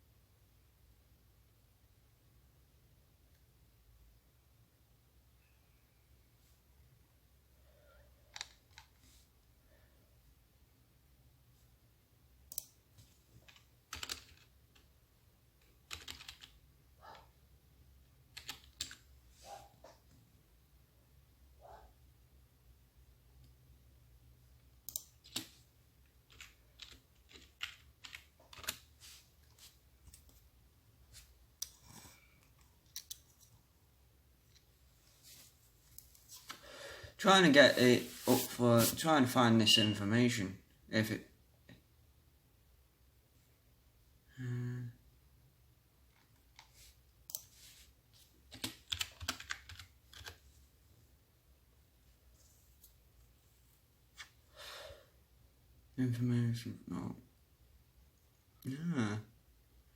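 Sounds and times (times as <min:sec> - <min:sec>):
computer keyboard typing: 0:13.4 - 0:14.9, 0:15.6 - 0:16.6, 0:18.3 - 0:19.1, 0:24.8 - 0:25.6, 0:26.3 - 0:28.9, 0:48.5 - 0:50.4.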